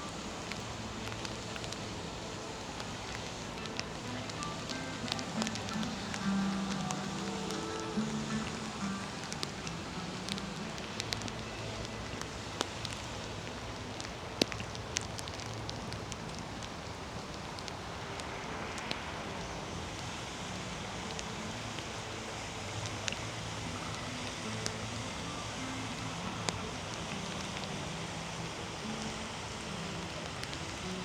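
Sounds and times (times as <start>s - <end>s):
drops ticking: 0.0s - 19.1s
rain falling: 0.0s - 31.0s.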